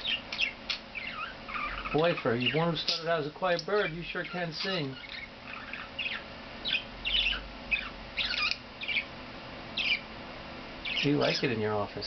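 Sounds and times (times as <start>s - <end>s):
budgerigar chirping: 0.0s - 3.0s, 3.8s - 9.1s, 9.8s - 10.1s, 10.8s - 11.4s.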